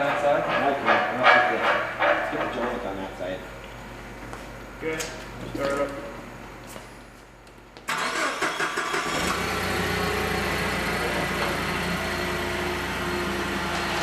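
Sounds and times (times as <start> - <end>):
motor starting and running: 7.9 - 14.0.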